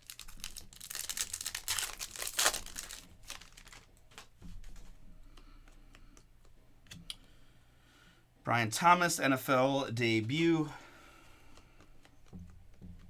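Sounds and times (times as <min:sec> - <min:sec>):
foil wrapper crinkling and tearing: 0:00.0 - 0:04.3.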